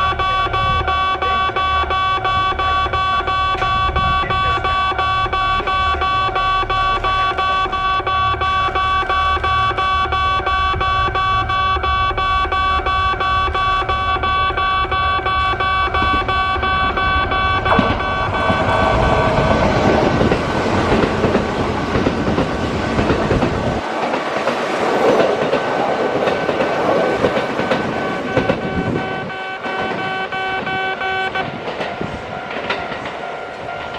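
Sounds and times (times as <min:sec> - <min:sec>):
steady multi-pitch ringing tone: 0:00.0 - 0:20.5
train passing through station: 0:00.0 - 0:33.9.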